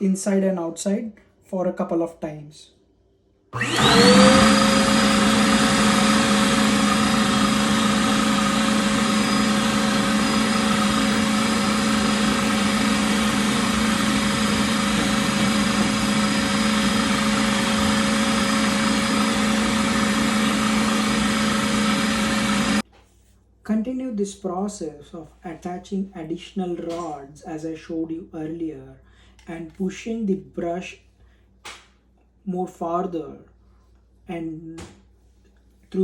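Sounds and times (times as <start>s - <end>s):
vacuum cleaner running: 3.6s - 22.8s.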